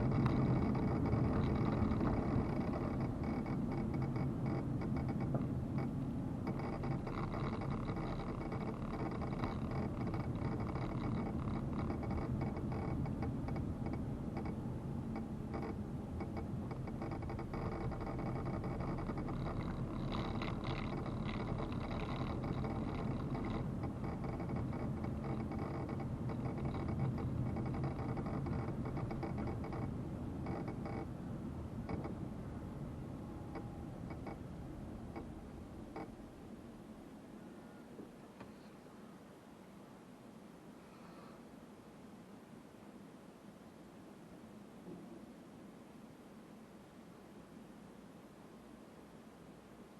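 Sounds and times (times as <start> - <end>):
vehicle engine hum: 0.0 - 36.8.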